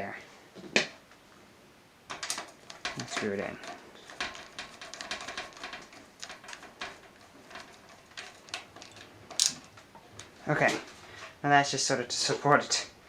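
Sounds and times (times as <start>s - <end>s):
screw clicking and scraping in metal: 2.1s - 10.3s.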